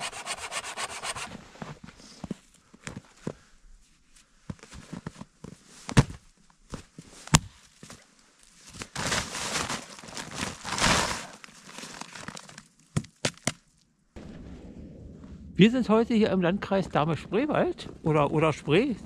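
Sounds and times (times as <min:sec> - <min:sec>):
crunching and rustling in snow: 0:08.4 - 0:12.6.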